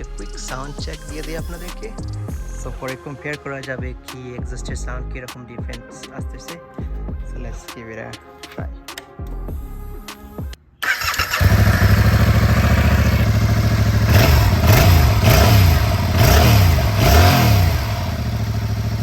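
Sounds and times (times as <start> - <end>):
motorcycle engine starting and revving: 10.8 - 19.0.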